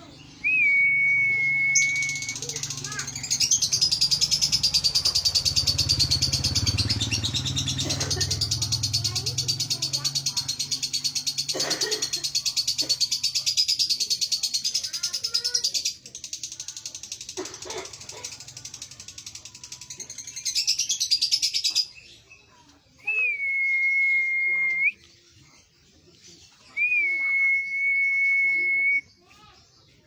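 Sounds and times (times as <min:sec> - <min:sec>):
bird whistles: 0:00.4 - 0:04.5, 0:23.0 - 0:25.0, 0:26.7 - 0:29.1
lovebird chattering trill: 0:01.7 - 0:22.2.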